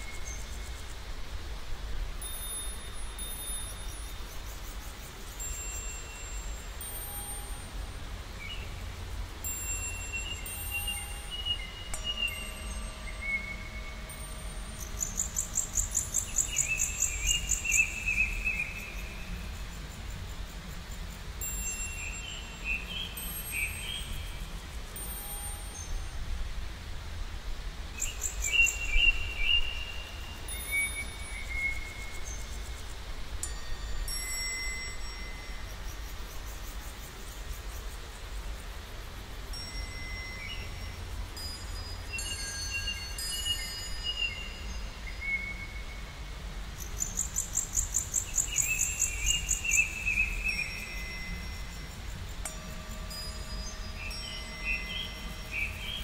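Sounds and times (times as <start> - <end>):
bird trill: 9.6 - 19.4, 46.8 - 56.0.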